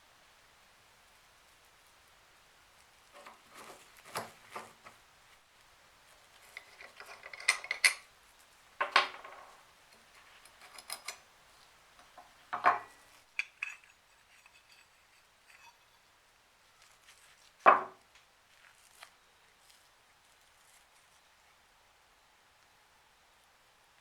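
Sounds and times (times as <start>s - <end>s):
small metal parts clinking: 6.4s - 8.1s, 8.8s - 11.2s, 12.0s - 15.9s.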